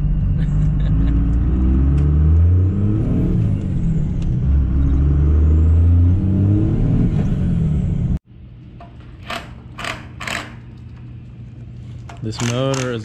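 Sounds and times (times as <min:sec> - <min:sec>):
pickup engine accelerating: 0:00.0 - 0:08.2.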